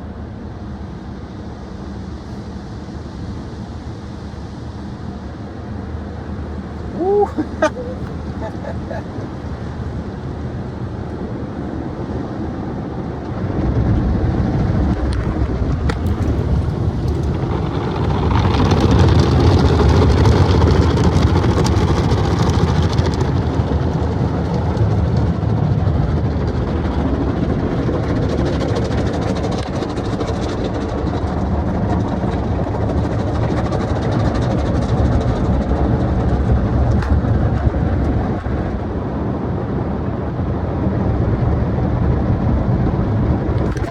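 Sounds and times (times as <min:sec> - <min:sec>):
car wash machinery rumbling: 0:00.0 - 0:12.3, 0:13.1 - 0:43.9.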